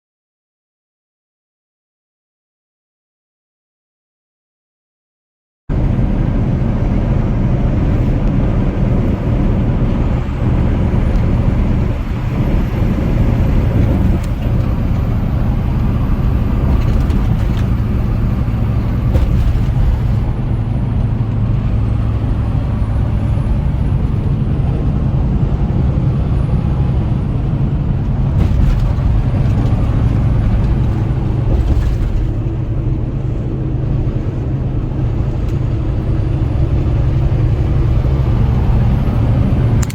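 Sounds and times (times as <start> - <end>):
diesel truck engine: 5.7 - 39.9
road noise: 5.7 - 39.9.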